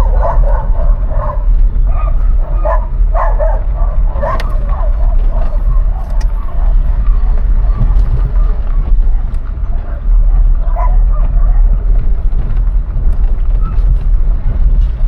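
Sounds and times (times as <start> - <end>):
dog barking: 0.0 - 11.7
car engine rumble: 0.0 - 15.0
tyres on road: 0.0 - 15.0.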